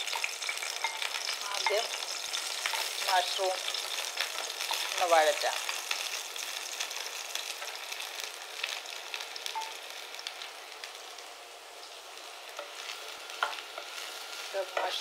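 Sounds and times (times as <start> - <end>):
mushrooms sizzling in oil: 0.0 - 15.0.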